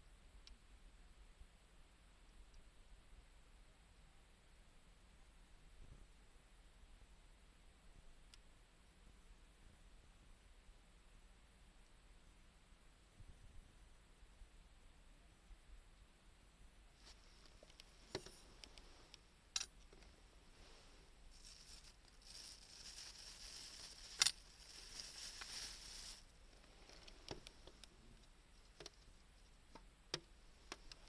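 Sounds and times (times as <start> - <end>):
wood fire crackling: 19.8 - 29.1.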